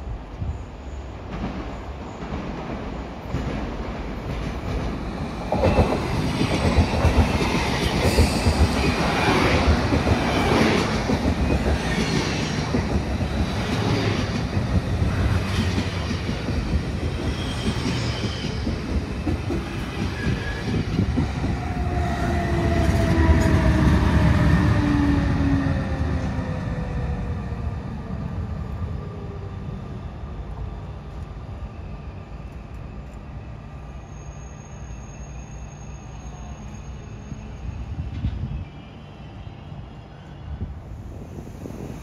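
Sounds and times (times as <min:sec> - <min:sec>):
train wheel squeal: 0:05.4 - 0:12.9, 0:15.1 - 0:25.7, 0:31.5 - 0:42.0.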